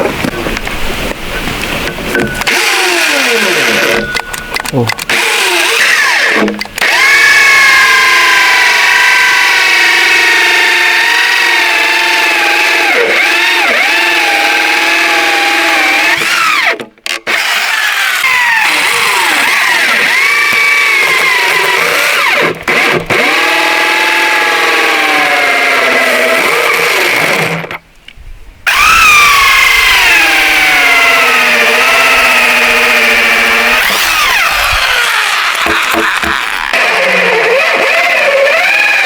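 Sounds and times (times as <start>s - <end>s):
small engine running under load: 28.7s - 38.9s.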